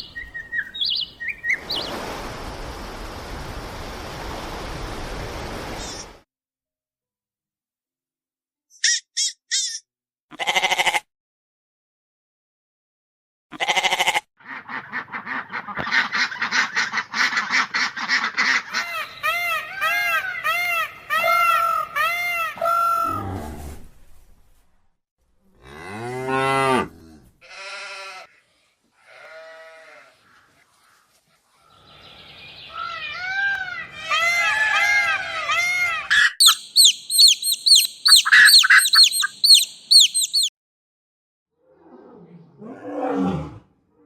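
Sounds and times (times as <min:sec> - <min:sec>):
rising and falling animal calls: 0:18.6 - 0:23.8, 0:32.7 - 0:40.5
long deep animal call: 0:22.6 - 0:23.8
rapid animal chatter: 0:36.4 - 0:40.5.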